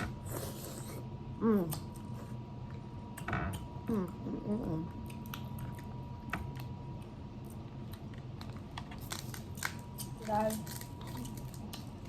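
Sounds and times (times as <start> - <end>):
wet chewing and squishing: 4.9 - 12.0.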